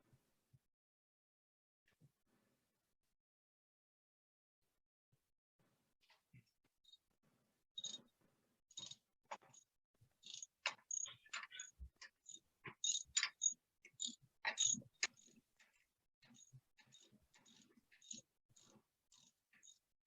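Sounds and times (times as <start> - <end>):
hand tools clicking and scraping: 10.3 - 19.8.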